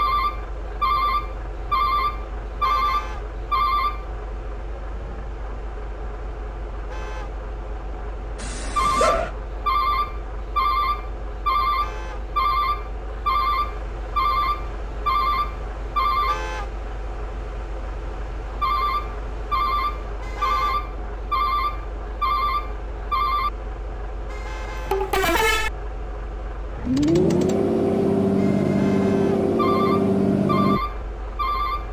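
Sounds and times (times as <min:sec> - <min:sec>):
truck engine running: 0:00.0 - 0:31.9
horn blasts: 0:06.9 - 0:07.3, 0:24.3 - 0:25.7, 0:28.3 - 0:30.8.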